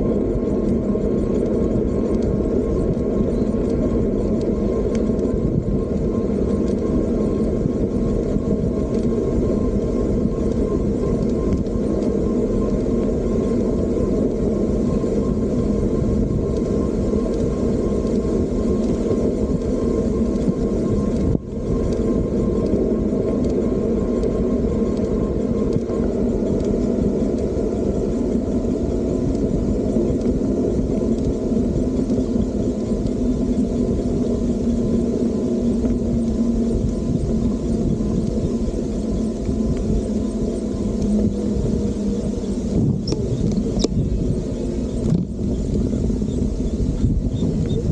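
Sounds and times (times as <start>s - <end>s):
wind and road rumble: 0.0s - 47.9s.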